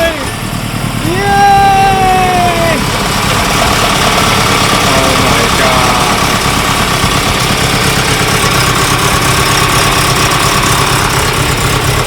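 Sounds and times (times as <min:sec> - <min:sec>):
car engine idling loudly: 0:00.0 - 0:12.0.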